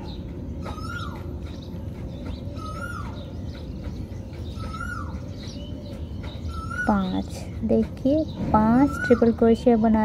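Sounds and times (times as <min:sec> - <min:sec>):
bird chirp call: 0:00.0 - 0:10.0
low hum: 0:00.0 - 0:10.0.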